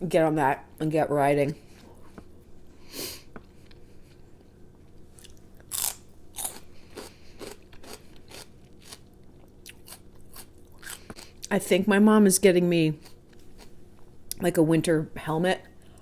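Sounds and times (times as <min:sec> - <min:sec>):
chewing and crunching food: 0:03.3 - 0:11.5.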